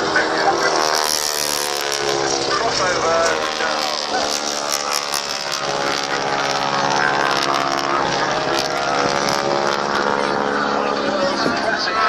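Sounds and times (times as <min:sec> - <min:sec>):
biplane radial engines: 0:00.0 - 0:12.0.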